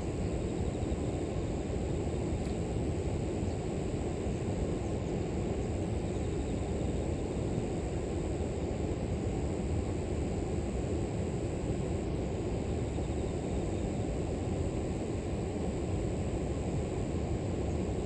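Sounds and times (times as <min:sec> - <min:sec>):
insects trilling: 0:00.1 - 0:02.3, 0:05.2 - 0:08.8, 0:12.4 - 0:18.0.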